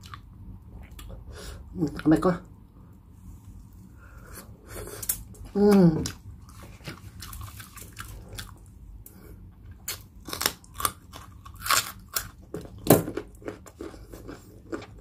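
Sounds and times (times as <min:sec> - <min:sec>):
carrot crunching: 0:05.0 - 0:08.7, 0:09.7 - 0:15.0
chewing: 0:06.0 - 0:08.7, 0:13.2 - 0:15.0.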